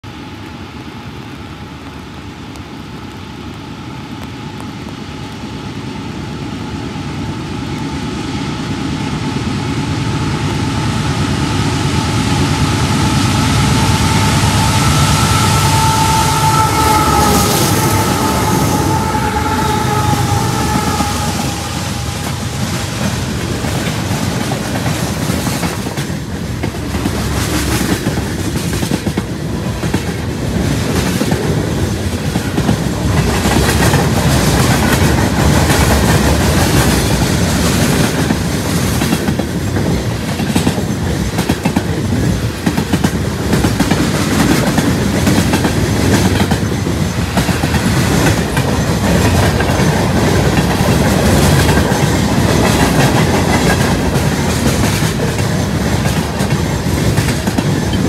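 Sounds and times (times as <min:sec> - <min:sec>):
diesel locomotive engines whining: 0:00.0 - 0:58.0
freight cars wheels clickety-clack: 0:14.6 - 0:58.0.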